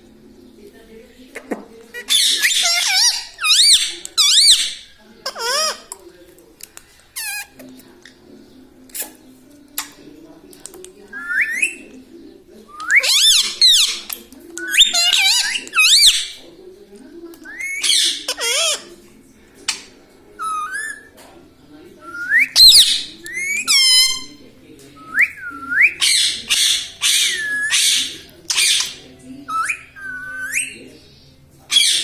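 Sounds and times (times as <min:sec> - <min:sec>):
parrot squawking: 0:02.0 - 0:05.9, 0:12.9 - 0:16.4, 0:17.5 - 0:18.9, 0:22.3 - 0:24.4, 0:25.2 - 0:30.8, 0:31.7 - 0:32.0.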